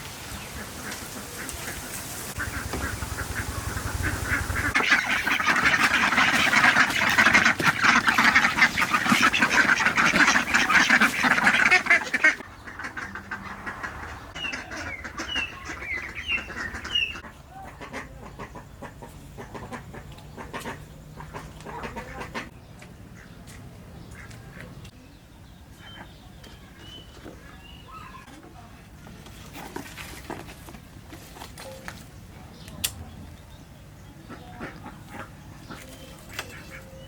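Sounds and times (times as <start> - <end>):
poultry calling: 0.4 - 22.5, 34.1 - 37.0.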